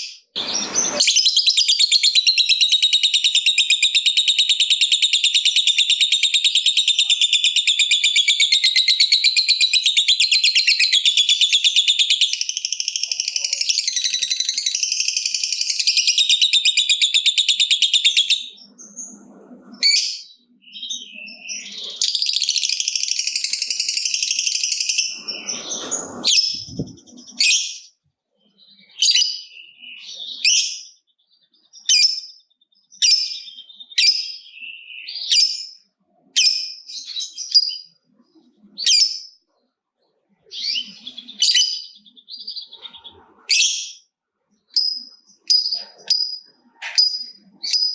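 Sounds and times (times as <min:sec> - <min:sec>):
short sharp bird calls: 0:00.0 - 0:02.4.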